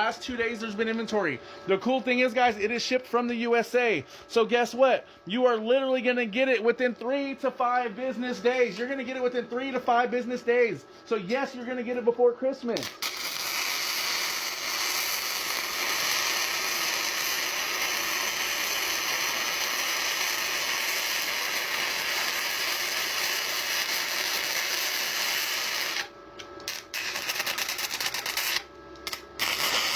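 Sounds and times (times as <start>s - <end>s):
welding arc crackling and hissing: 12.6s - 29.9s.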